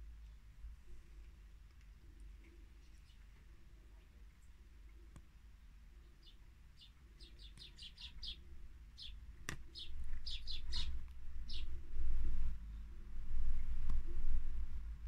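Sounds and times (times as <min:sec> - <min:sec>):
small birds chirping: 0:01.7 - 0:11.9
low rumble: 0:10.3 - 0:15.0.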